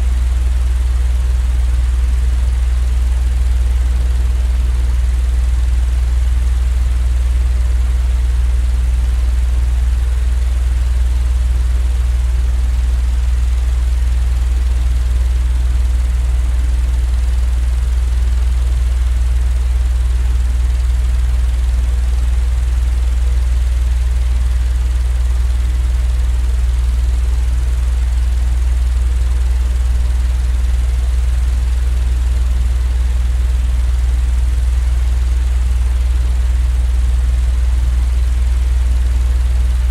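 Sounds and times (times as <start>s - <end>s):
electric fan humming: 28.9s - 31.0s.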